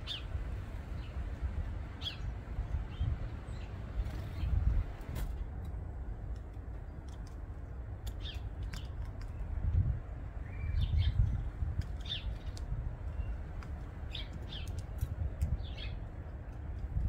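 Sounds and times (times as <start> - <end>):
bird chirps and calls: 0.0 - 0.3, 2.0 - 4.6, 10.4 - 13.4, 14.0 - 16.1.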